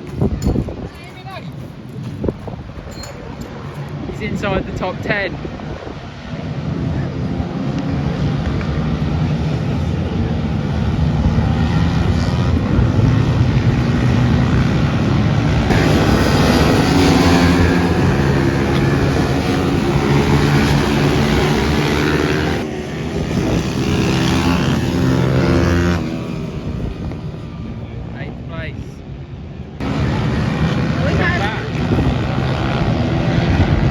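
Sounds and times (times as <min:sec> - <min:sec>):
small motorcycle engines revving: 0:06.1 - 0:27.8, 0:29.8 - 0:33.9.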